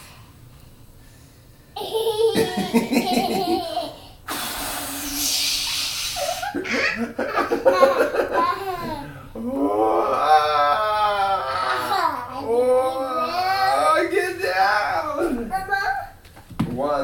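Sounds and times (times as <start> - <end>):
toddler laughing: 1.8 - 4.1, 6.2 - 9.2, 10.1 - 13.8
breathy hiss: 3.8 - 6.7, 8.9 - 9.5.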